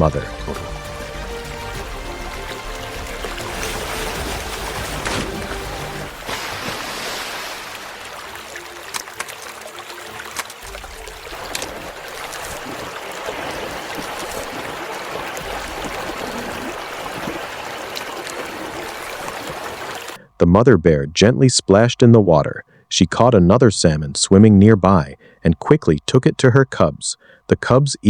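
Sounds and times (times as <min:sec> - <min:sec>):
sharp water splashes: 0:00.0 - 0:20.2
river water rushing: 0:00.2 - 0:20.2.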